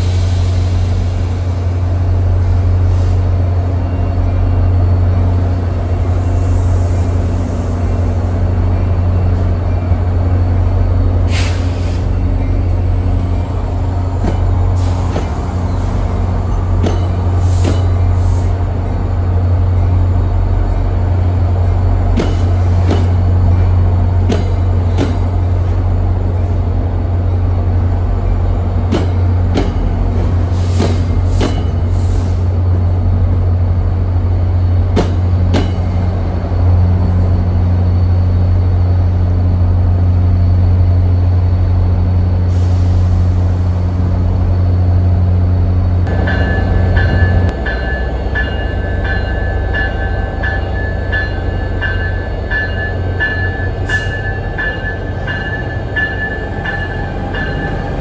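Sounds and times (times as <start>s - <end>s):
train rumbling: 0.0s - 58.0s
locomotive bell ringing: 46.1s - 58.0s.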